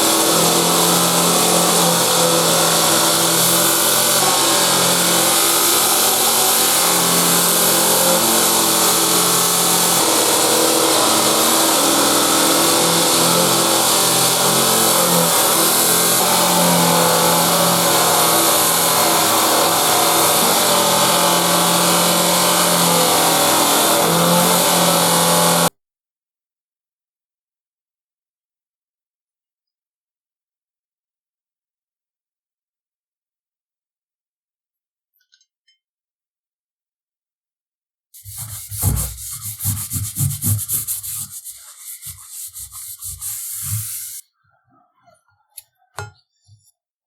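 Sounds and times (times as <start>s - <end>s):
polishing wheel buffing metal: 0.0s - 25.7s, 38.2s - 44.2s.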